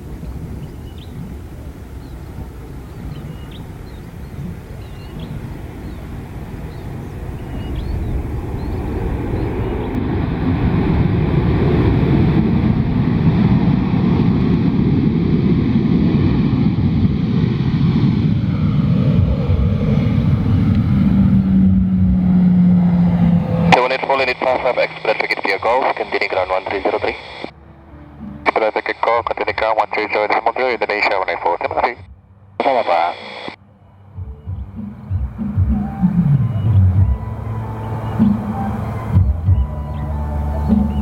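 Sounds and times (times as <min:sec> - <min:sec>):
birds chirping: 0:00.0 - 0:10.9, 0:23.5 - 0:32.0, 0:32.6 - 0:41.0
airliner engines roaring: 0:00.0 - 0:41.0
faint engine whine: 0:00.0 - 0:41.0.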